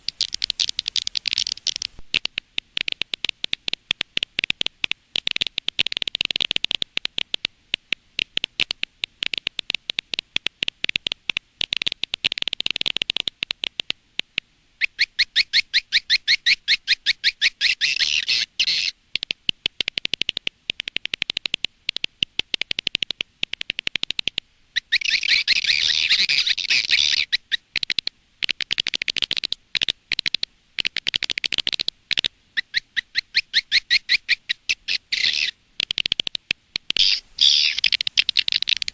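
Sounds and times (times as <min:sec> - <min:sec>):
swiftlets chirping and twittering: 0:00.0 - 0:02.0, 0:37.0 - 0:38.9.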